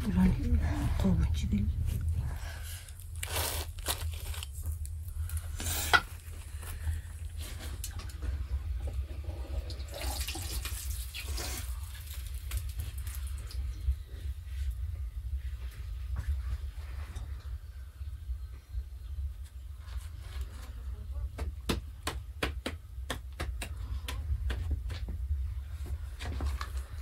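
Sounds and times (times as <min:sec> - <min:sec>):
low steady rumble: 0:00.0 - 0:21.4.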